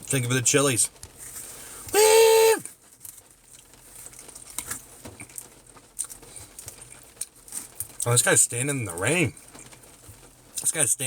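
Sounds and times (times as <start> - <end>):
man whooping: 1.9 - 2.7
faint light patter: 2.7 - 11.0.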